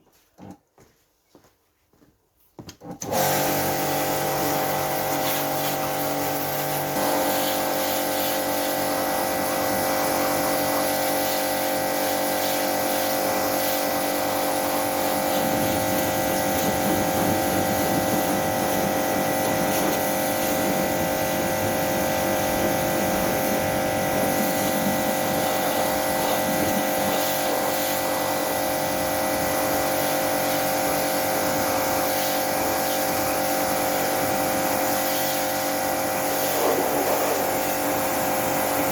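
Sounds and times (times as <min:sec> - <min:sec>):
pressure washer motor humming: 0:03.0 - 0:38.9.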